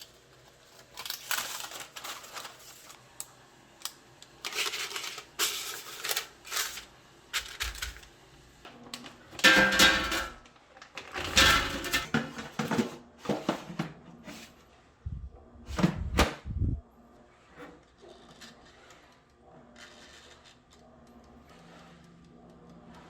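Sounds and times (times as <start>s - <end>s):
household objects rustling and clattering: 0.0s - 3.0s, 4.4s - 14.7s.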